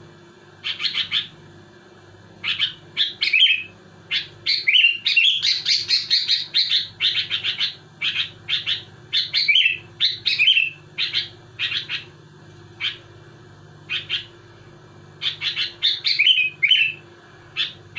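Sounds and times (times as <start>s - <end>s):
bird singing sharp chirps: 2.4s - 12.1s, 15.2s - 17.0s.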